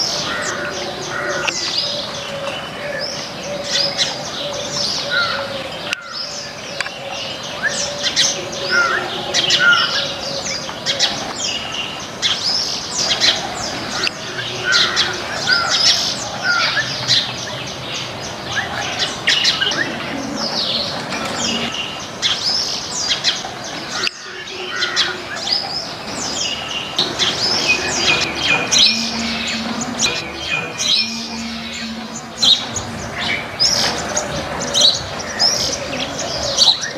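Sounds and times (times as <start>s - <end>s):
chorus of birds chirping: 0.0s - 36.9s.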